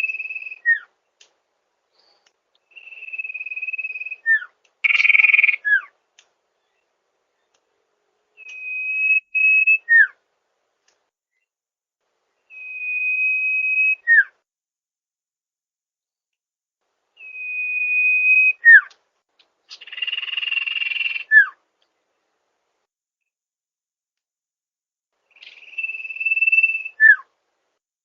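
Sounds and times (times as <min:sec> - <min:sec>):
bird whistling call: 0:00.0 - 0:00.9, 0:02.7 - 0:05.9, 0:08.4 - 0:10.2, 0:12.5 - 0:14.3, 0:17.2 - 0:18.9, 0:19.7 - 0:21.6, 0:25.3 - 0:27.3.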